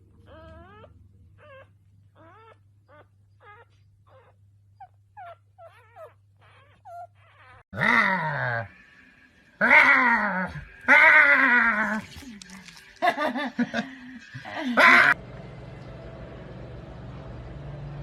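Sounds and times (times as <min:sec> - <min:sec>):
pet whining calls: 0:00.2 - 0:08.8
pet long wailing call: 0:09.6 - 0:12.6, 0:14.6 - 0:15.2.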